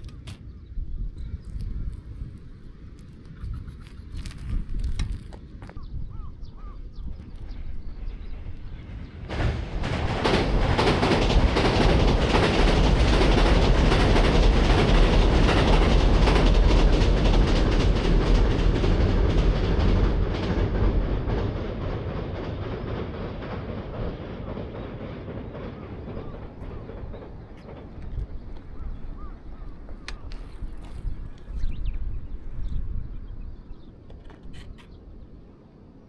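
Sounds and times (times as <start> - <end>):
train wheels clacking on rails: 7.4 - 31.8.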